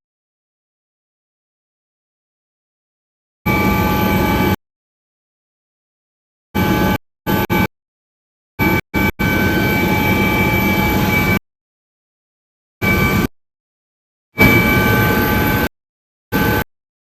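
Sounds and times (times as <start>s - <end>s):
helicopter engine and rotor din: 3.5s - 4.6s, 6.6s - 7.7s, 8.6s - 11.4s, 12.8s - 13.3s, 14.4s - 15.7s, 16.3s - 16.6s
high whining tones: 3.5s - 4.6s, 8.6s - 11.4s, 12.8s - 13.3s, 14.4s - 15.7s.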